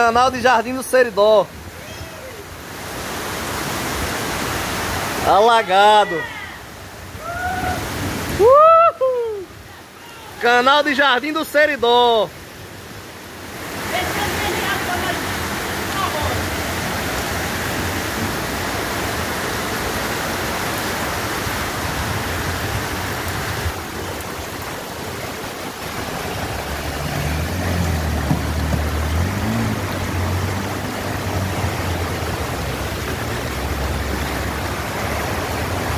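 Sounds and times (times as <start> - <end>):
floodwater rushing: 0.0 - 35.9.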